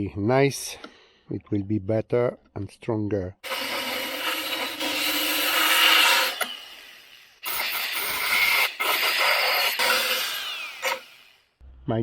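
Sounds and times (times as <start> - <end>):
power grinder grinding sheet steel: 3.4 - 11.4.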